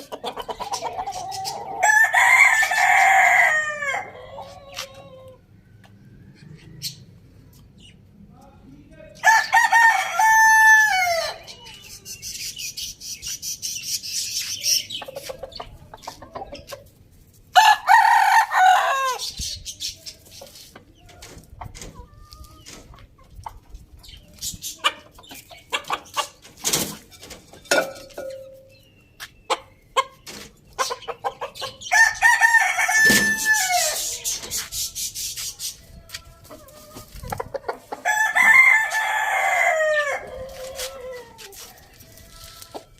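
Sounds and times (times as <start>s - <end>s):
chicken clucking: 0.0s - 7.7s, 13.0s - 17.4s, 18.9s - 42.9s
rooster crowing: 1.7s - 5.4s, 9.2s - 11.4s, 17.6s - 19.2s, 31.9s - 34.1s, 38.0s - 42.4s.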